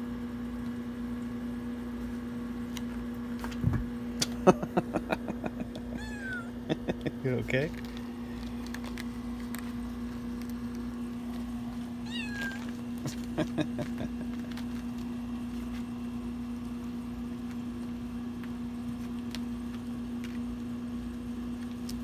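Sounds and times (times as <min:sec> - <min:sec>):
low electrical hum: 0:00.0 - 0:22.0
kitten meowing: 0:05.9 - 0:06.7, 0:12.0 - 0:12.7
kitten chirping: 0:05.9 - 0:06.9, 0:12.0 - 0:12.7.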